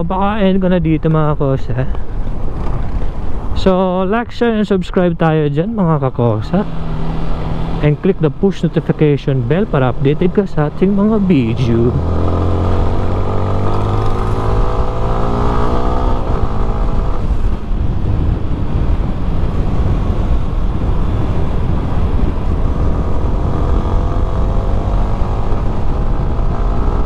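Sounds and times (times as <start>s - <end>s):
wind noise: 1.8s - 3.6s, 9.4s - 27.0s
motorcycle engine accelerating: 6.5s - 27.0s.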